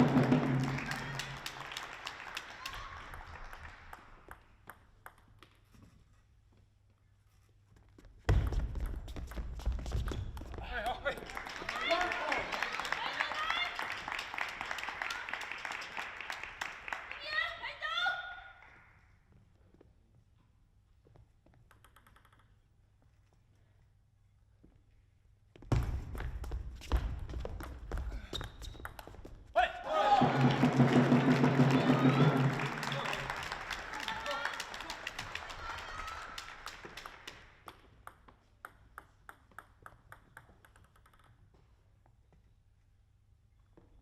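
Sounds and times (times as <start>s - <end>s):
crowd clapping and clatter: 0.0s - 4.8s, 10.6s - 17.5s, 30.1s - 38.1s
faint table tennis taps: 3.1s - 5.9s, 21.4s - 22.6s, 37.6s - 41.8s.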